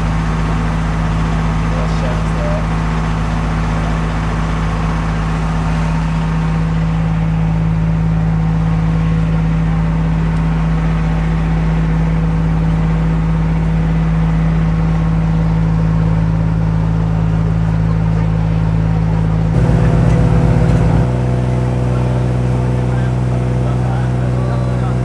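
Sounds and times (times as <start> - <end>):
locomotive engine idling: 19.6 - 25.0.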